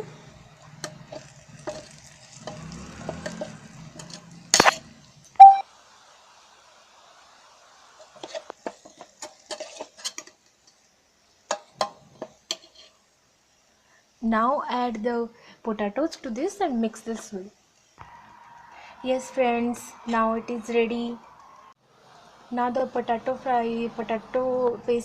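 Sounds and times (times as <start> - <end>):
light sizzling: 0.0 - 25.0
spoon stirring and scraping pot: 0.7 - 4.7, 8.0 - 10.8, 11.5 - 13.0.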